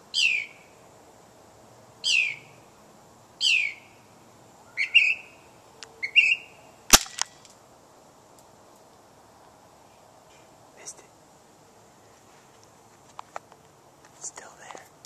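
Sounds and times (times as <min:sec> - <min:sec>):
bird singing: 0:00.0 - 0:00.8, 0:02.0 - 0:02.6, 0:03.4 - 0:06.9
sharp click: 0:06.9 - 0:07.6.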